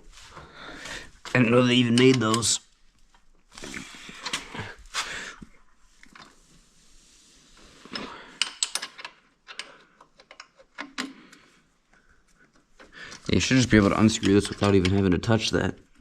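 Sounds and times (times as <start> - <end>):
wrench scraping and rattling: 7.6 - 11.3, 12.8 - 15.6.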